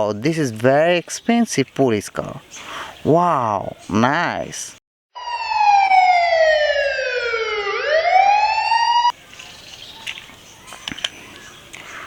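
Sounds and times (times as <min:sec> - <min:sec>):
police siren wail: 0:05.2 - 0:09.1.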